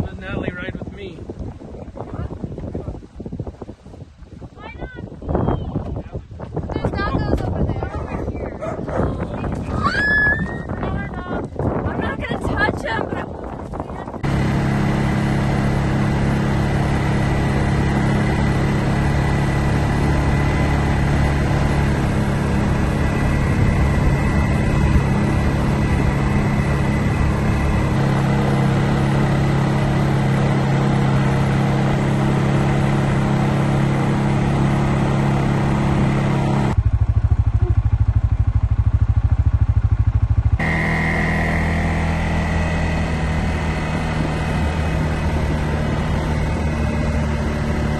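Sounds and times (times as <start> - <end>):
small vehicle engine running: 13.7 - 47.9.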